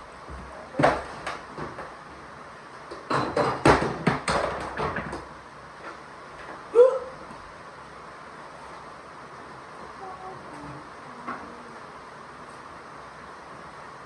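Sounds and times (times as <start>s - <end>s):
knocks and clatters: 2.9s - 5.3s.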